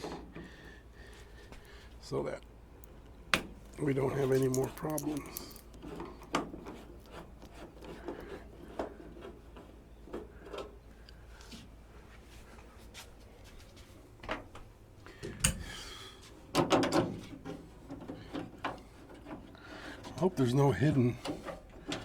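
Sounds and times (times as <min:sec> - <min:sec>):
hand tools clicking and clinking: 0:03.8 - 0:06.2.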